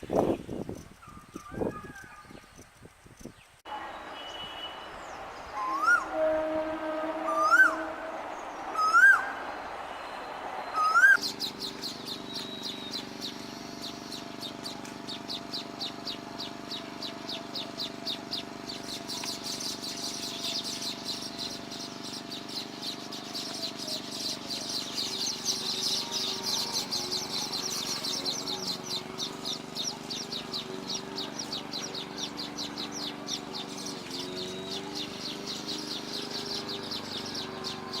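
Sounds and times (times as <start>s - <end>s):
birds chirping: 0.0s - 38.0s
loud rising calls: 4.8s - 16.2s.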